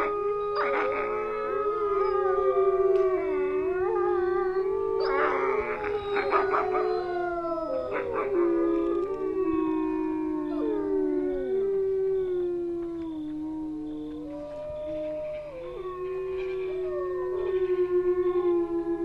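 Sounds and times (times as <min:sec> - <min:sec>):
wolves yipping and barking: 0:00.0 - 0:11.4
wolves howling: 0:00.0 - 0:19.0.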